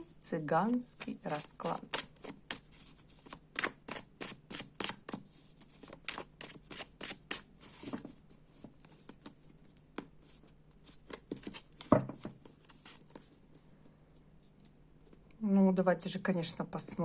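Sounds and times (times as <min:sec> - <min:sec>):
cards being shuffled: 0:00.9 - 0:13.4.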